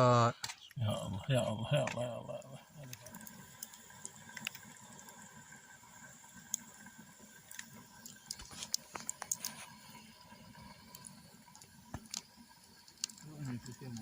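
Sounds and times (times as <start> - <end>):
low steady background hum: 0.0 - 14.0
faint clicks and taps: 7.4 - 9.8, 10.9 - 14.0.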